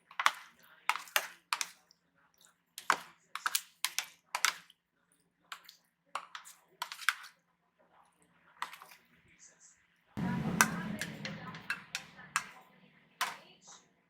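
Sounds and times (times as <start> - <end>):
spoon clicking against dish: 2.8 - 4.7.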